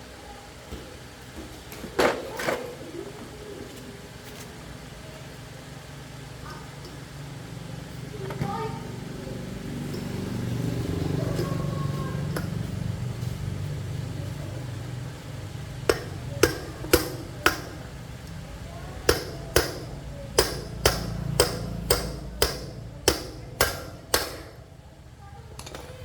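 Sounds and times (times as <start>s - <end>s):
steady low hum: 2.8s - 26.0s
hammer striking metal: 15.8s - 18.0s, 19.0s - 24.7s.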